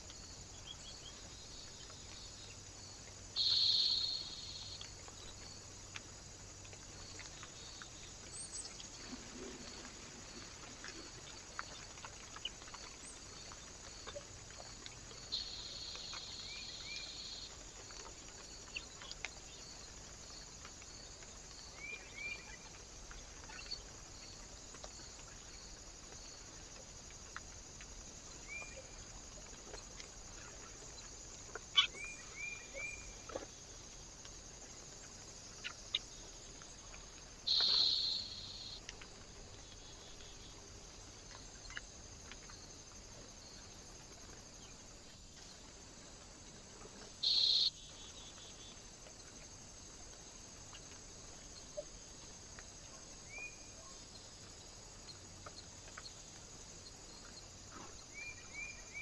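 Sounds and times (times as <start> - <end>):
recorder hiss: 0.0 - 59.0
small birds chirping: 3.4 - 5.4, 35.1 - 38.8, 47.2 - 48.8.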